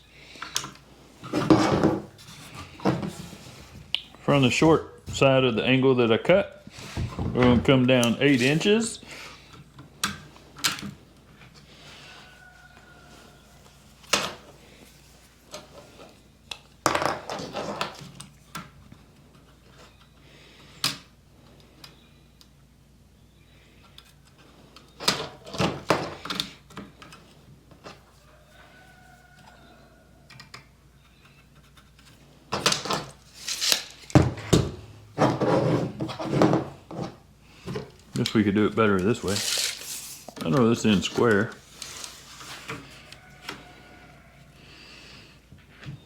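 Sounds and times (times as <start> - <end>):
scraping: 33.2 - 43.8.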